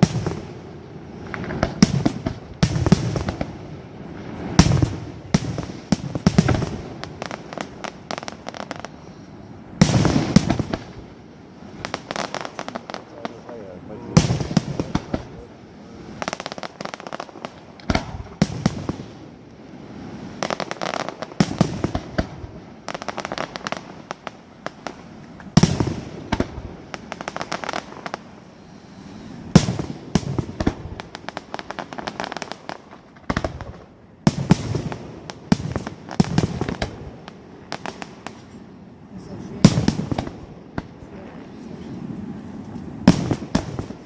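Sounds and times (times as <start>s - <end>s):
fireworks crackling: 0.0s - 44.0s
firework shells bursting: 11.8s - 15.6s.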